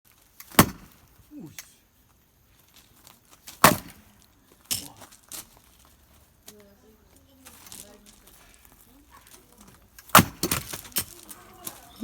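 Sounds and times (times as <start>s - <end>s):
axe splitting wood cracks: 0.4s - 1.7s, 3.4s - 5.1s, 9.9s - 12.0s.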